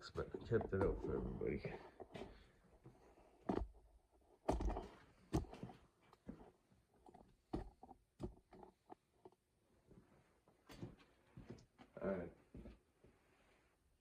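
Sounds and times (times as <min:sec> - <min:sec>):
objects knocking and clunking: 0:00.0 - 0:09.5.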